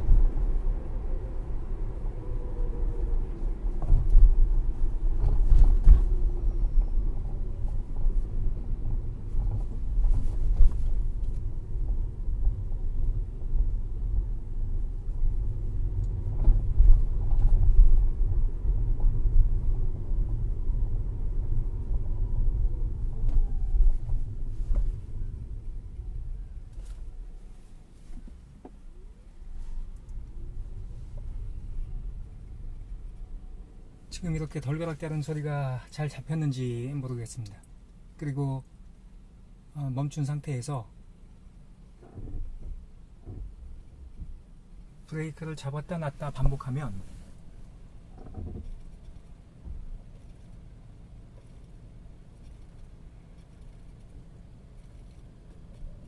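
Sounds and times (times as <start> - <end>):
road and tyre rumble: 0.0 - 56.0
suspension clunks and rattles: 3.3 - 27.4, 41.9 - 44.9, 46.4 - 50.2.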